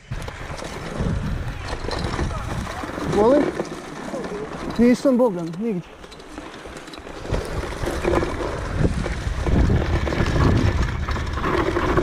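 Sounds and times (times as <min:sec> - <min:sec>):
wind buffeting microphone: 0:00.0 - 0:03.6, 0:07.1 - 0:12.0
bicycle tyres rattling on dirt: 0:00.0 - 0:12.0.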